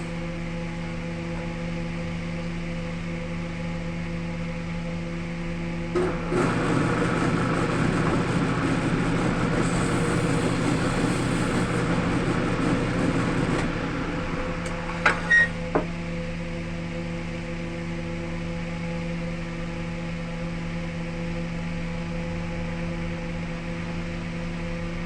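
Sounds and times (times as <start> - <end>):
wood lathe humming: 6.0 - 14.8
tool working spinning wood: 6.3 - 13.6.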